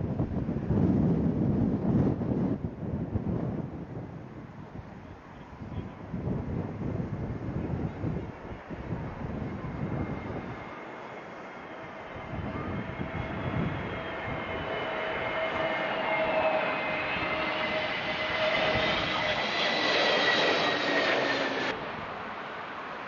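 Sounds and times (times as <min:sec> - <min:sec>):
broad rush of passing plane: 0:06.6 - 0:23.0
jet engines whining: 0:07.8 - 0:23.0.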